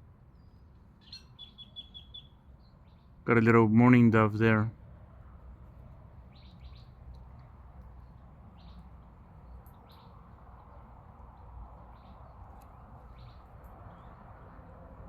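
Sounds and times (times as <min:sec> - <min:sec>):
low background noise: 0:00.0 - 0:15.0
faint high bird chirps: 0:00.3 - 0:03.2, 0:06.3 - 0:07.0, 0:08.0 - 0:10.8.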